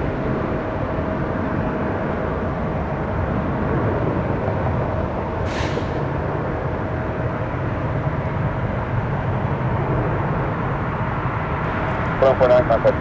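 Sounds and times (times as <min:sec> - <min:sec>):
jet engines rumbling and whining: 0:11.6 - 0:13.0.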